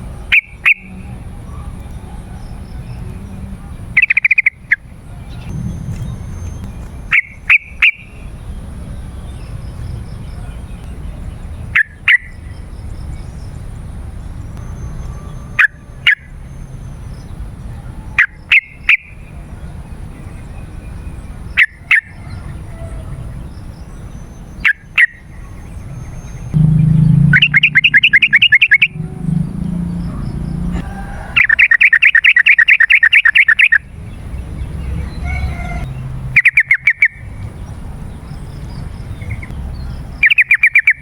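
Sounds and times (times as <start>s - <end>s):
low background rumble: 5.0s - 11.6s, 25.5s - 31.5s
bird calling in sharp bursts: 26.6s - 33.8s, 35.2s - 37.3s.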